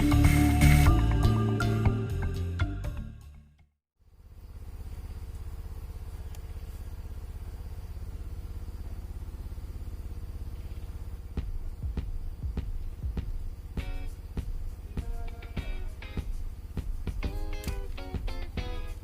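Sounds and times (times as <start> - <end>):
small engine running: 4.0 - 19.0.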